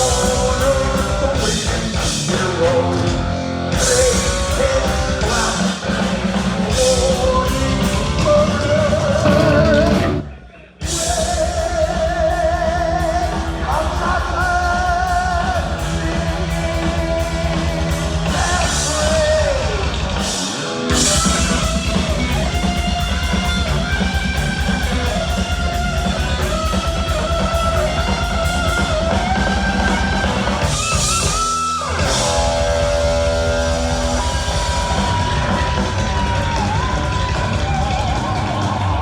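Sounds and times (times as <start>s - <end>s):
fast drum beat: 0.0s - 10.2s, 10.8s - 39.0s
bass guitar: 0.0s - 39.0s
electric guitar lead: 15.6s - 39.0s.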